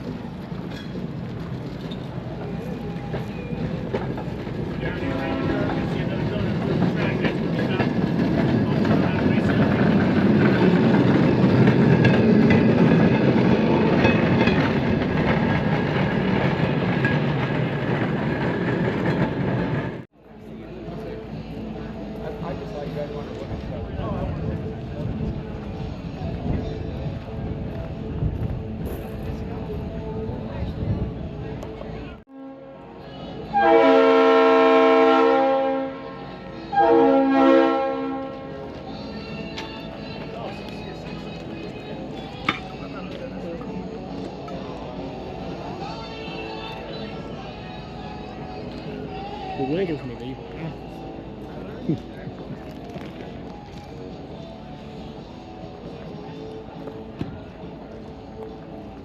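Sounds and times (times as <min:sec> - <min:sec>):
steel wheels rolling on rails: 0:00.0 - 0:32.2
locomotive horn blasts: 0:04.9 - 0:06.0, 0:32.3 - 0:38.7.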